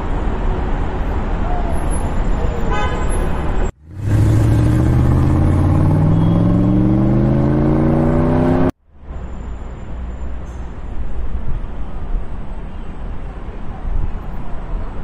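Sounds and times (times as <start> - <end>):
street traffic noise: 0.0 - 15.0
car engine accelerating: 3.8 - 8.8.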